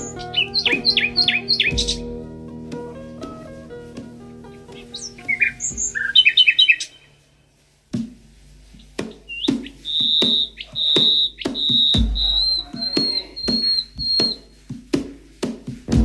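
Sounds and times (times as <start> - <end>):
songbird whistling notes: 0.0 - 2.1, 4.8 - 7.1, 9.3 - 14.5.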